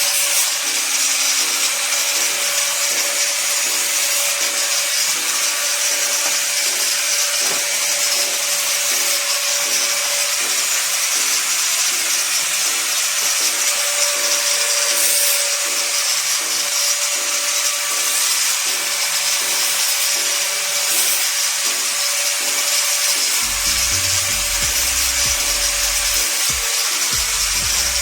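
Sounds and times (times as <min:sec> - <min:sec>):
angle grinder motor whine: 0:00.0 - 0:28.0
quiet background music: 0:00.1 - 0:28.0
sanding pad hissing on wood: 0:22.9 - 0:28.0.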